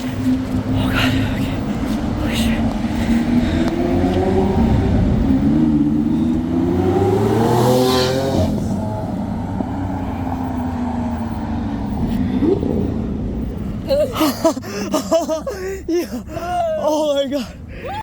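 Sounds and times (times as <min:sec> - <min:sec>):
sports car accelerating past: 0:02.0 - 0:13.2.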